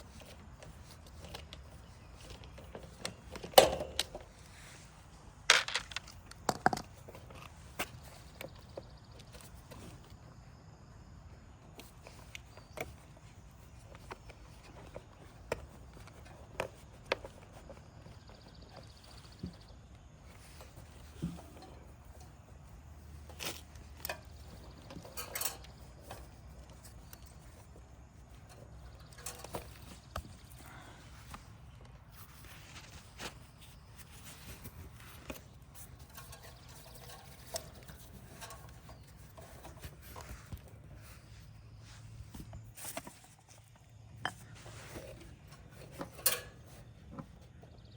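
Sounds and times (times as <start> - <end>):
tools and parts clicking: 0.1 - 4.3, 5.5 - 9.8, 23.2 - 31.9, 33.3 - 40.9, 42.4 - 47.2.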